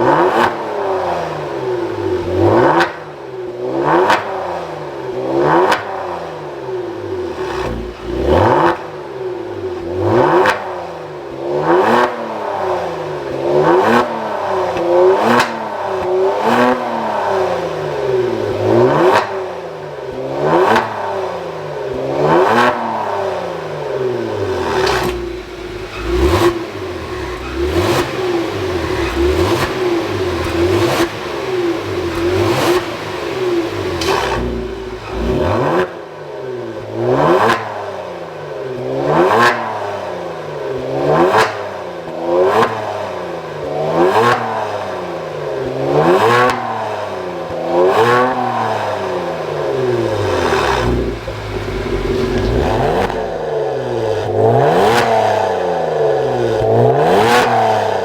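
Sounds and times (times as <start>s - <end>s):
car exhaust revving: 3.6s - 10.8s, 11.4s - 37.9s, 38.8s - 58.0s.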